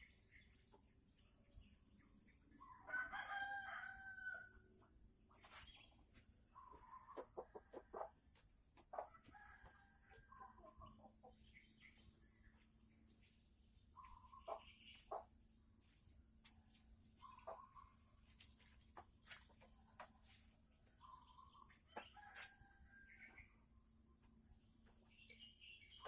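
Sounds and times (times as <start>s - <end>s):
hen clucking and cackling: 6.6s - 8.2s.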